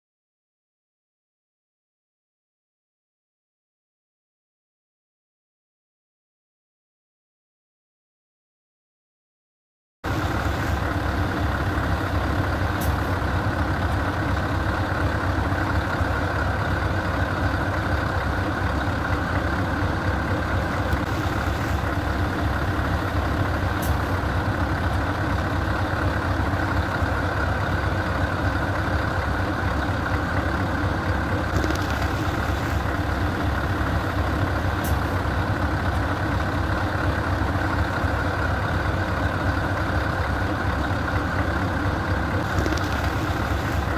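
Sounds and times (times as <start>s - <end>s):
truck engine idling: 10.1s - 43.9s.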